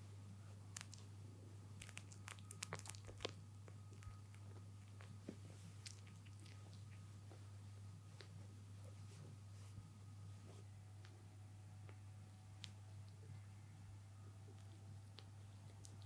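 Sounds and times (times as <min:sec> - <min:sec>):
low steady hum: 0:00.0 - 0:16.0
kittens suckling: 0:01.7 - 0:09.2.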